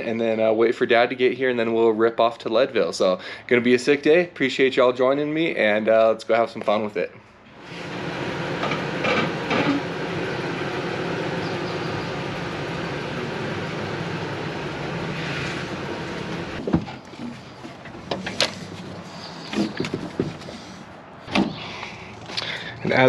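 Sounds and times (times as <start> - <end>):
vehicle engine running: 7.5 - 21.0.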